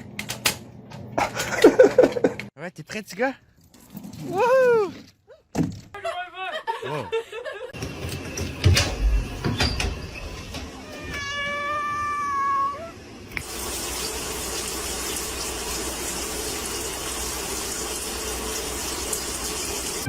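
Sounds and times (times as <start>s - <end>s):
cat meowing: 10.8s - 13.0s
tap water running: 13.3s - 20.0s.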